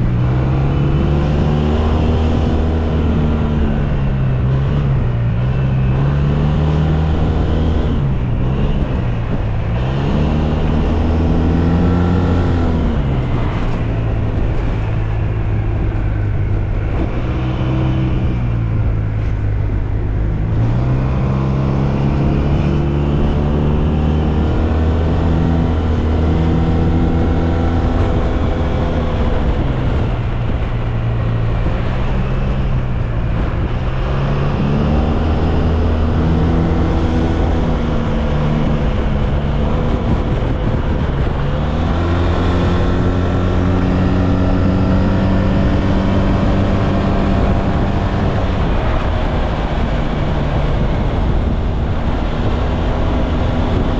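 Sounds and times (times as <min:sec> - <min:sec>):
wind and road noise: 0:00.0 - 0:53.9.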